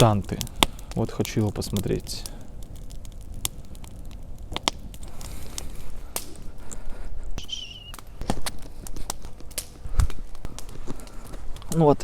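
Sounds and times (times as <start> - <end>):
campfire crackling and popping: 0.0 - 12.0
wavering whistle: 7.4 - 8.0.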